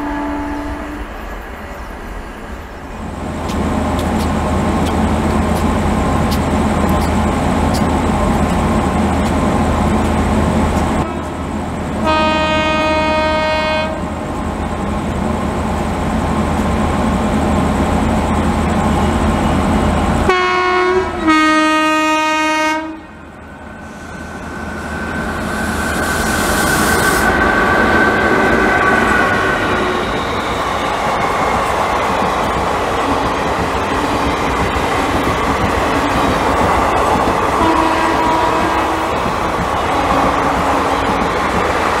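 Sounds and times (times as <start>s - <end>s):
locomotive horn blasts: 0.0s - 1.1s, 11.0s - 11.4s, 12.0s - 14.1s, 20.3s - 23.2s, 37.6s - 39.2s
train rumbling past: 0.0s - 42.0s.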